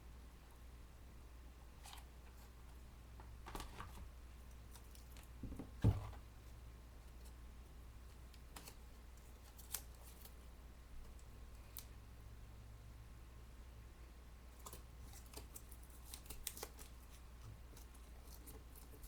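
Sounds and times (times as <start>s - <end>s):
thump on table: 5.4s - 6.2s.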